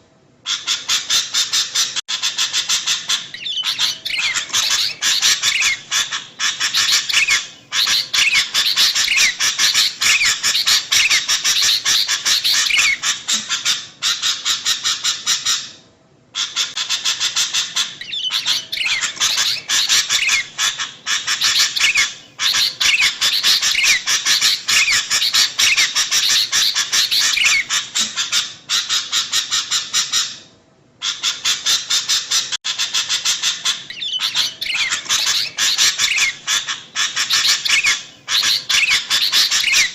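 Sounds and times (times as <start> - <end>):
bulbuls chattering: 2.4 - 13.6, 33.5 - 39.9.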